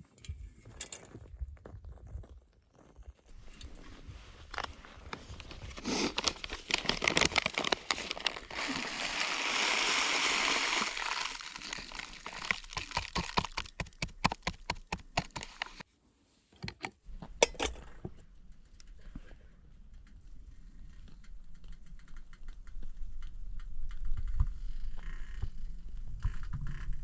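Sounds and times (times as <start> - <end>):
sharp clicks and knocks: 16.6 - 18.2.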